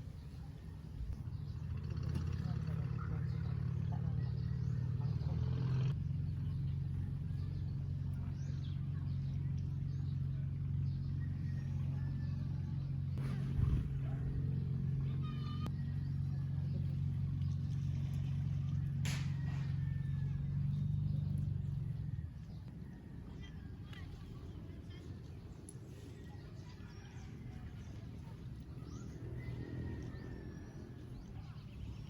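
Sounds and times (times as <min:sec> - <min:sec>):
low engine hum: 0:00.0 - 0:32.0.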